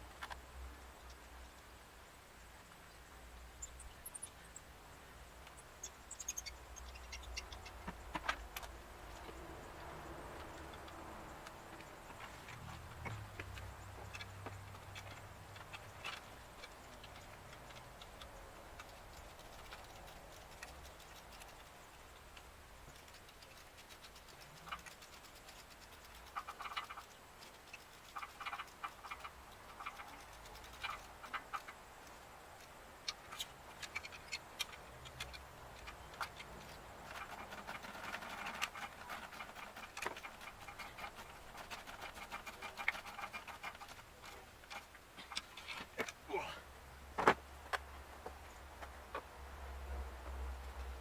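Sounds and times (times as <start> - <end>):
hand tools clicking and scraping: 6.2 - 46.3.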